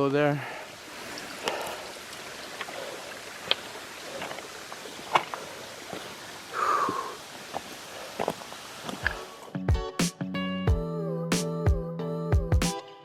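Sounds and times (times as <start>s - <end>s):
rustle: 0.0s - 9.5s
creek water trickling: 0.0s - 9.6s.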